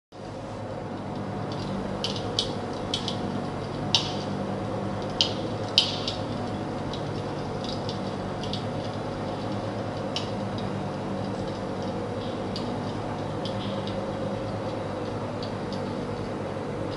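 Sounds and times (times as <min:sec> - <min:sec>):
fire crackling: 0:00.2 - 0:16.9
fire popping: 0:01.0 - 0:16.9.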